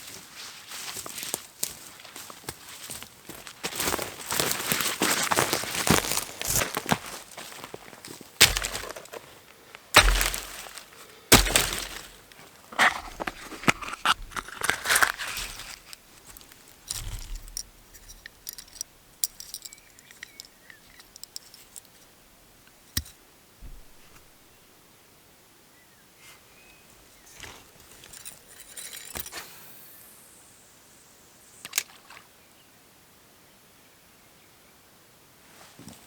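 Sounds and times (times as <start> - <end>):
dry sticks snapping: 8.4 - 9.3, 9.9 - 22.0
thud: 10.0 - 10.7, 11.3 - 12.2, 23.6 - 24.2.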